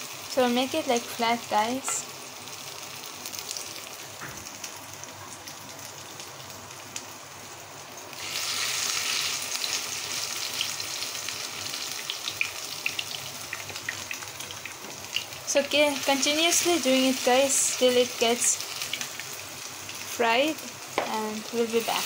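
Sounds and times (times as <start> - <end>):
batter sizzling in oil: 0.0 - 22.0
oil crackling and popping: 8.0 - 15.4.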